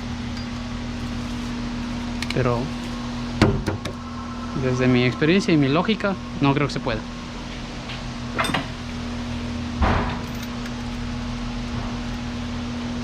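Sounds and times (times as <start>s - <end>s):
steady low hum: 0.0s - 13.0s
metal tools being handled: 8.4s - 9.0s.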